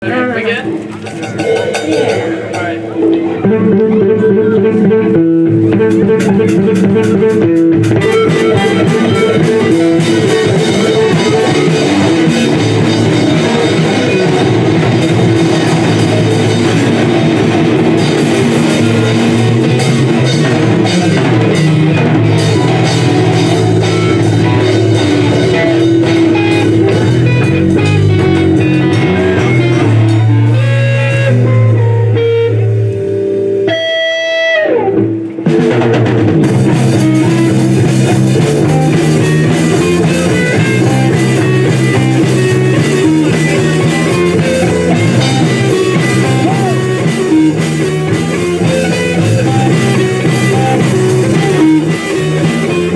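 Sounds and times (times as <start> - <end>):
rock band playing: 0.0 - 52.9
electric guitar note sliding down: 8.0 - 35.8.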